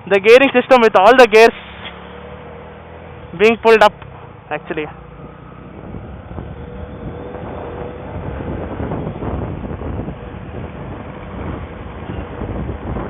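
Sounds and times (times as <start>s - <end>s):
wind rushing over microphone: 5.2s - 13.0s.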